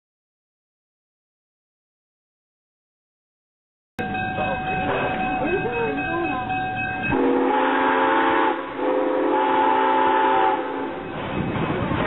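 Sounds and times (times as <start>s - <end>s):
steam locomotive whistle: 7.1s - 11.2s.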